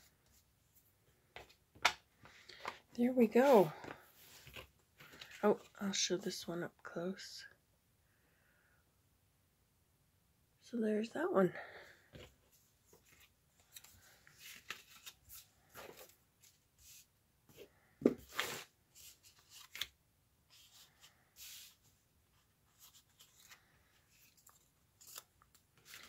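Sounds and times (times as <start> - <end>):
paper rustling: 3.4 - 5.7, 12.2 - 26.0.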